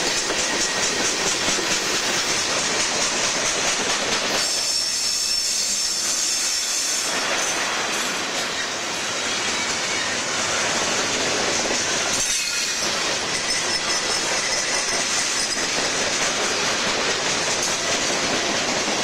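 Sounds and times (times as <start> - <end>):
train wheels clattering over rail joints: 0.0 - 19.0
high wheel squeal: 4.3 - 7.6, 12.1 - 16.7.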